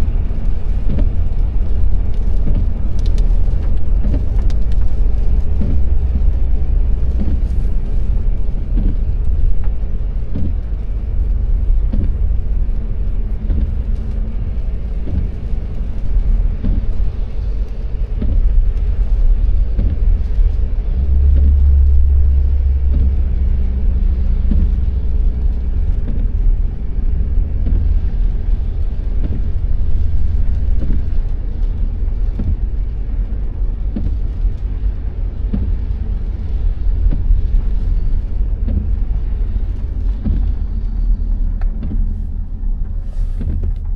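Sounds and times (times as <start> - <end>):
car engine and road noise: 0.0 - 43.9.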